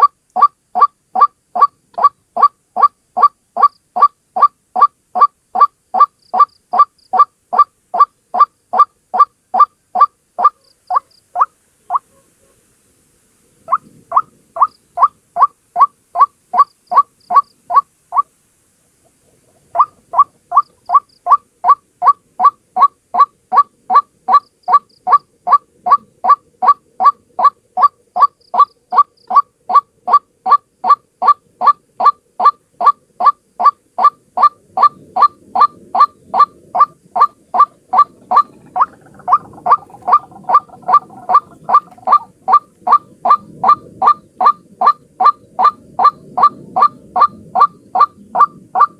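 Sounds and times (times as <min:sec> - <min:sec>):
waterhen calling: 0:00.0 - 0:12.3, 0:13.7 - 0:18.4, 0:19.2 - 0:48.9
lower bird call: 0:19.7 - 0:48.9
low rumbling noise: 0:37.1 - 0:48.8.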